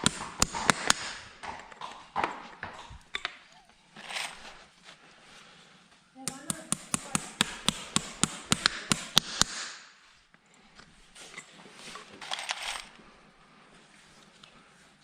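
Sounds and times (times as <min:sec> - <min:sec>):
rapid hammer taps: 0:00.0 - 0:02.7, 0:06.3 - 0:09.8.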